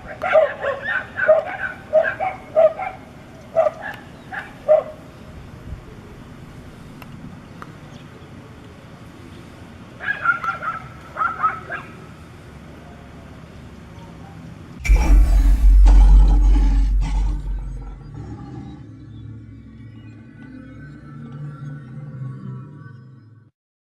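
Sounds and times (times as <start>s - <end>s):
dogs barking and yelping: 0.1s - 4.9s, 10.0s - 12.0s.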